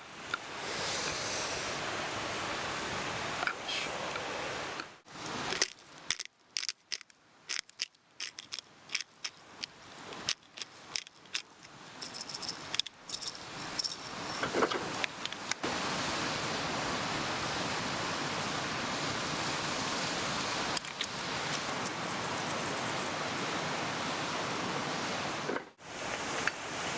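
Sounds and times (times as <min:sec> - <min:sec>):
mountain stream rushing: 0:00.0 - 0:05.7, 0:11.7 - 0:26.9.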